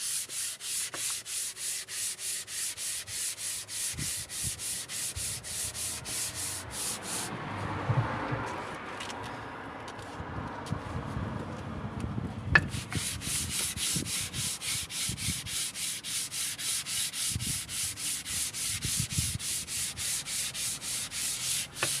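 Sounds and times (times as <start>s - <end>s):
sanding scraping strokes: 0.0s - 7.3s, 12.6s - 22.0s.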